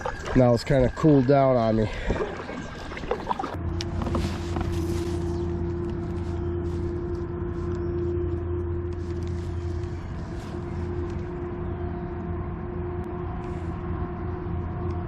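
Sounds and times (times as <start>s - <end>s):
mechanical hum: 3.6s - 15.0s.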